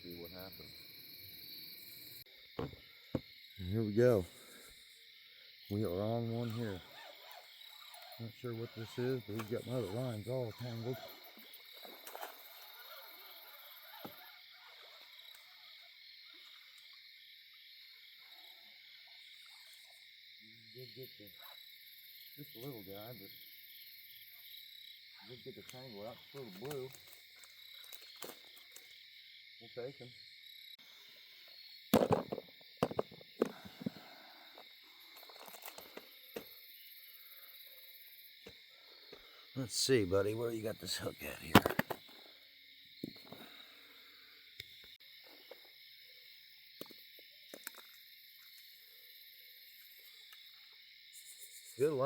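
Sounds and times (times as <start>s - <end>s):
night insects trilling: 0.0s - 52.0s
sharp knocks and thumps: 2.6s - 3.3s, 32.0s - 34.0s.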